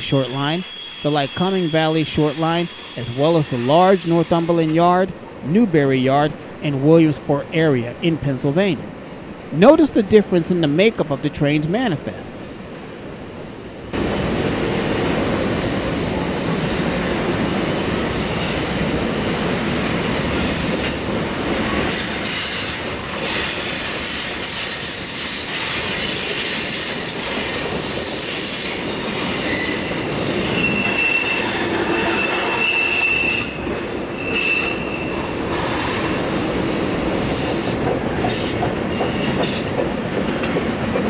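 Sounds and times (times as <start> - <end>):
freight train cars rolling: 0.0 - 41.0
wheel squeal: 0.3 - 4.5, 15.0 - 17.0, 17.8 - 39.7.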